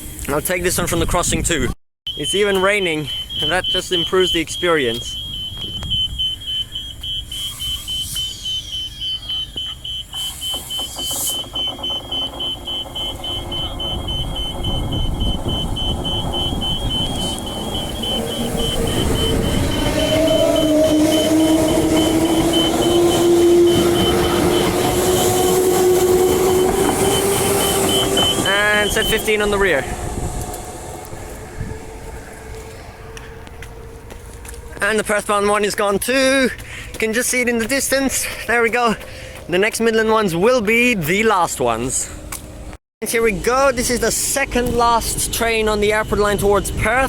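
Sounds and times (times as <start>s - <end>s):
level crossing bells ringing: 2.2s - 5.8s, 11.4s - 25.5s
electric train rumbling: 2.2s - 47.0s
train motor whine: 2.3s - 35.4s.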